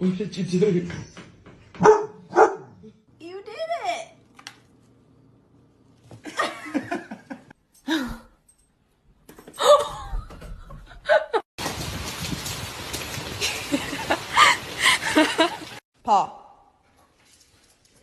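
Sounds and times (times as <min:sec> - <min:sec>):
people laughing: 0:06.3 - 0:07.5, 0:13.4 - 0:15.8.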